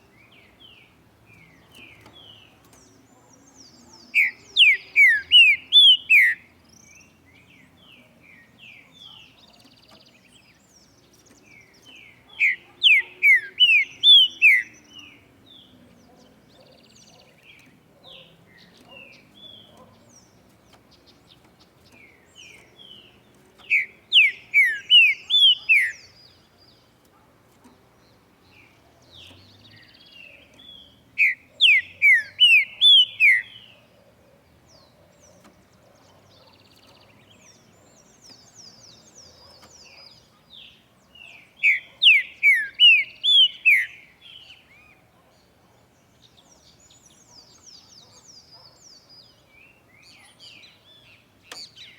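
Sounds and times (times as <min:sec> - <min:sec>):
soft bird chirps: 0:00.0 - 0:51.9
bird whistling song: 0:04.1 - 0:07.1, 0:11.2 - 0:15.2, 0:22.3 - 0:26.4, 0:29.1 - 0:33.9, 0:36.5 - 0:45.0.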